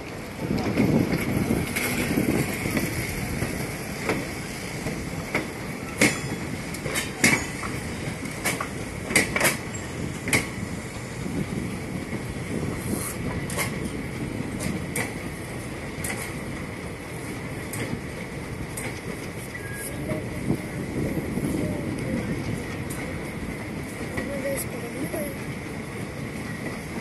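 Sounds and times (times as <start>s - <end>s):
train wheels rumbling on rail: 0.0s - 27.0s
wheels clacking over rail joints: 0.0s - 27.0s.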